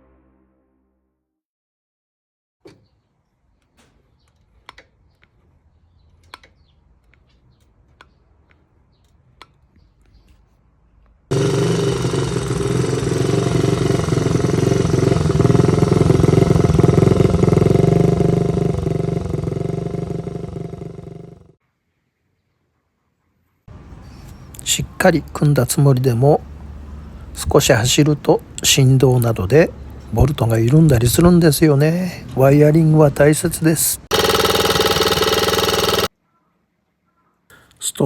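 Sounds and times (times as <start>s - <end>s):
small motorcycle engine running: 11.3s - 21.6s, 32.5s - 36.1s.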